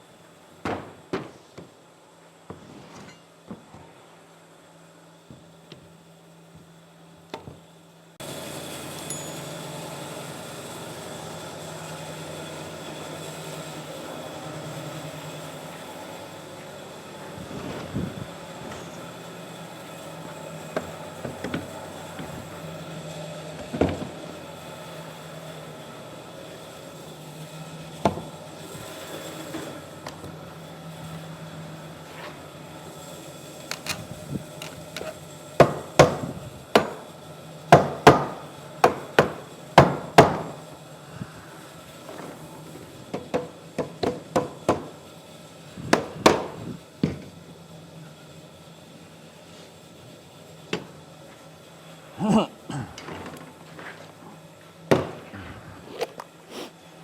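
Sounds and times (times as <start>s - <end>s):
hammering on wood: 35.6s - 37.0s, 37.7s - 40.6s, 43.1s - 44.9s, 45.9s - 47.2s, 54.9s - 55.3s.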